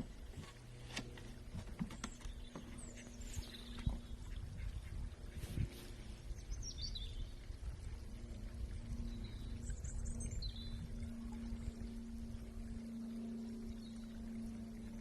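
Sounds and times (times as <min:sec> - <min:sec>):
low background rumble: 0:00.0 - 0:15.0
steady low hum: 0:00.0 - 0:15.0.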